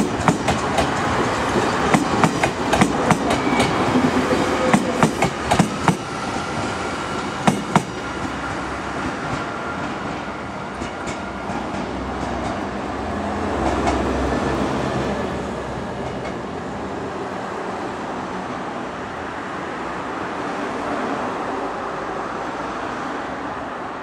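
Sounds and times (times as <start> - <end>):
train wheel clicks: 0.0 - 3.8, 4.7 - 6.1, 7.4 - 9.5.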